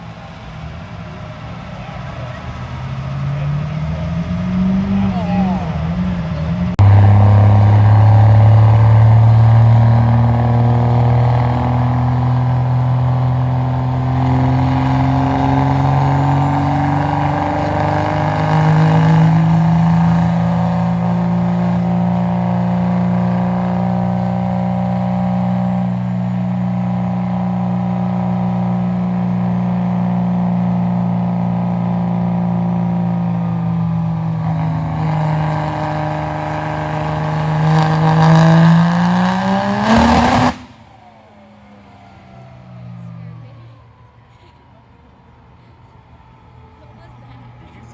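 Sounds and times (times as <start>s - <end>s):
diesel truck engine under load: 0.0s - 47.9s.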